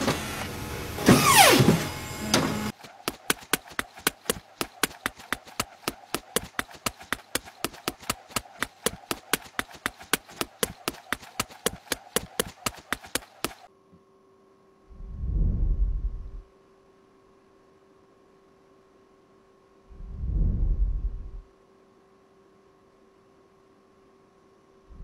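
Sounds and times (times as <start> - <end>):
rapid clicking ticks: 3.0 - 13.7.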